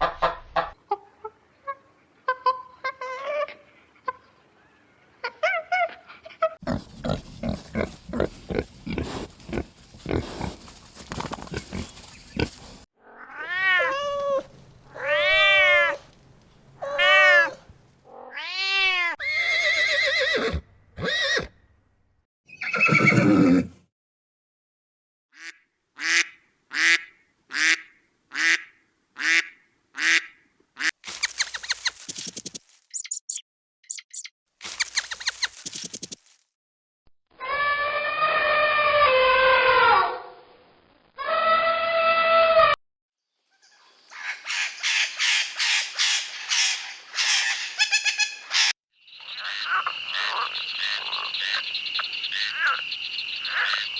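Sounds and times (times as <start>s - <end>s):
rapid rhythmic animal sounds: 6.6s - 12.8s, 31.1s - 36.2s
long rising and falling calls: 31.1s - 36.2s.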